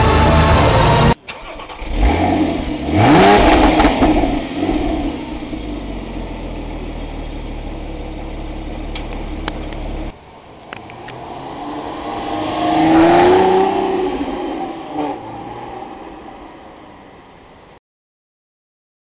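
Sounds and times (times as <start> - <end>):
engine revving: 0.0 - 6.4, 10.7 - 16.6
car engine starting and idling: 0.0 - 17.8.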